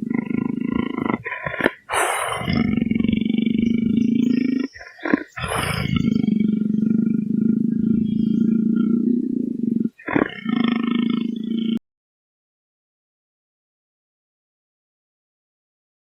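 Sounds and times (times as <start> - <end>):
large animal growling: 0.0 - 11.8.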